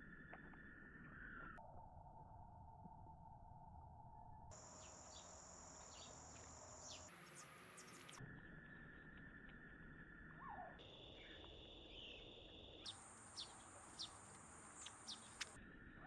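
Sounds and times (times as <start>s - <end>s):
insect drone: 4.5s - 16.0s
short bird chirps: 12.9s - 15.6s.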